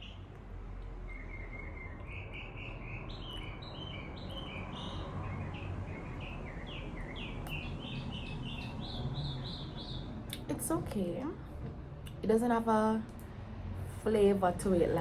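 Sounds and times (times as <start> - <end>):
bird chirping: 0.0 - 0.4, 1.0 - 10.4
low outdoor background noise: 0.0 - 15.0.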